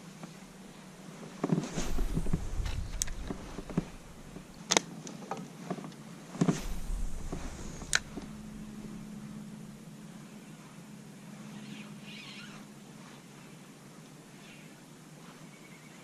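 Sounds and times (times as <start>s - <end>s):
rustling and rumbling movement: 0.4s - 4.7s, 6.3s - 10.0s.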